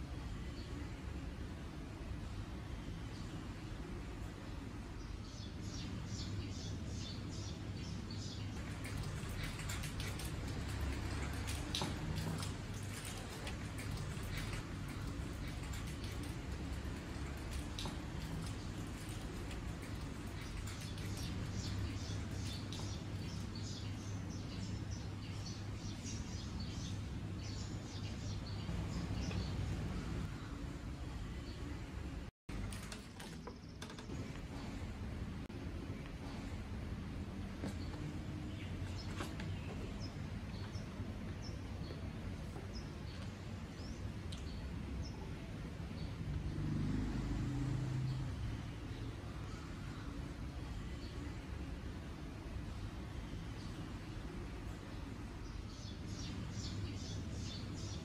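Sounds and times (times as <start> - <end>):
distant traffic rumble: 0.0 - 58.0
small birds chirping: 2.6 - 32.2, 35.9 - 47.2, 47.8 - 58.0
vehicle engine hum: 45.6 - 52.1.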